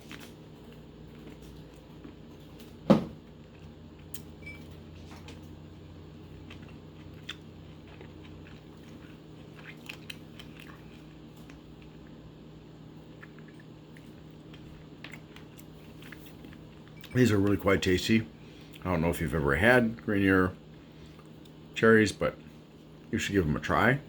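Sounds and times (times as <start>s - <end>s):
chewing mouth sounds: 6.2s - 12.2s, 13.0s - 17.1s.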